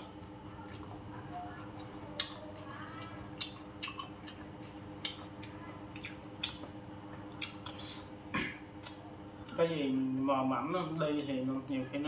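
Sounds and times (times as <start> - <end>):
person chewing food: 0.0 - 9.6
steady low hum: 0.0 - 12.0.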